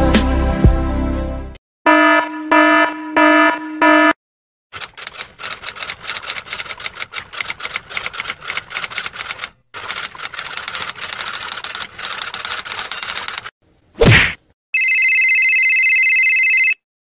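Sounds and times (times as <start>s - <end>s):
typewriter keys clacking: 4.8s - 13.5s.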